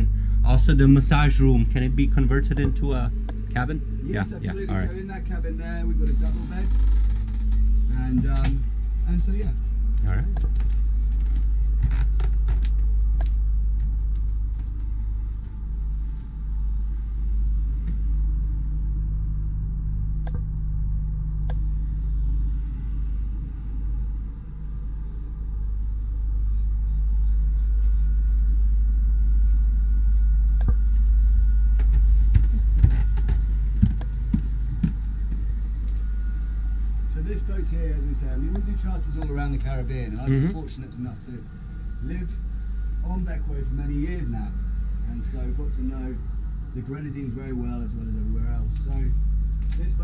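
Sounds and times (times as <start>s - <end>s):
boat machinery rumble and hum: 0.0s - 50.0s.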